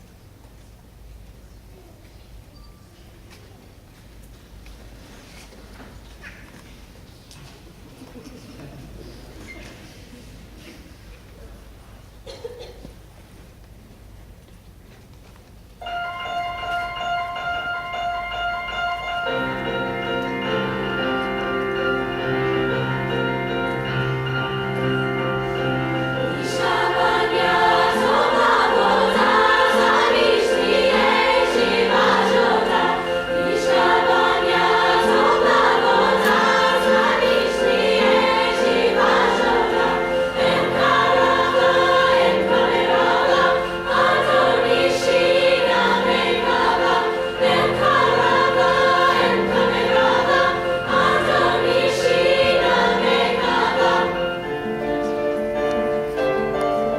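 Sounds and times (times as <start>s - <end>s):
piano accompaniment: 15.8s - 56.9s
women's choir singing: 19.3s - 55.4s.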